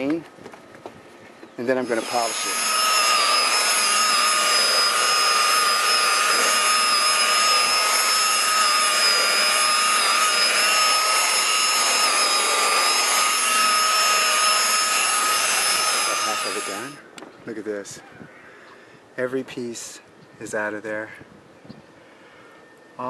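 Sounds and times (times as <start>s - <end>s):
electric buffer whining: 1.6s - 17.0s.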